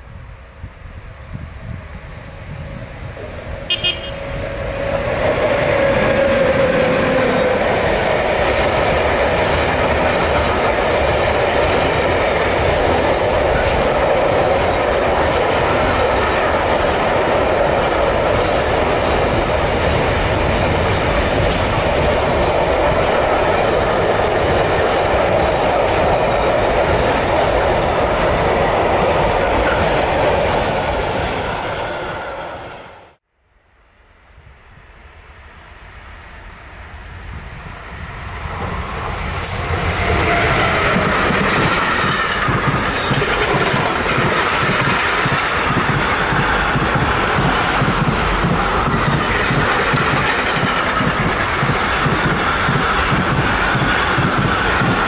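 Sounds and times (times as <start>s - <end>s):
train rumbling past: 0.0s - 33.2s, 34.0s - 55.0s
wheels clattering over rails: 40.1s - 55.0s.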